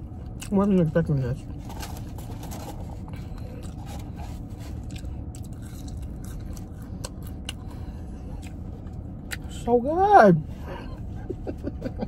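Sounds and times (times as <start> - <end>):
steady low hum: 0.0 - 12.0
person chewing food: 1.6 - 9.5.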